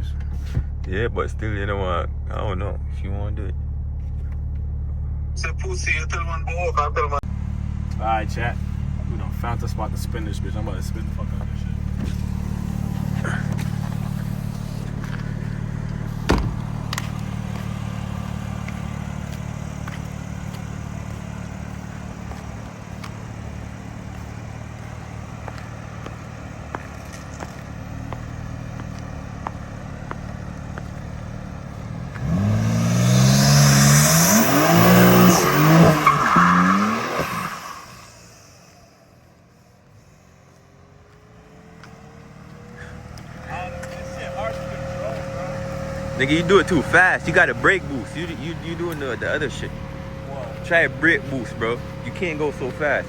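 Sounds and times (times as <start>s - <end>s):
car engine running and revving: 0.0s - 53.0s
tires squealing: 7.3s - 38.9s, 41.5s - 53.0s
thump: 16.2s - 17.1s.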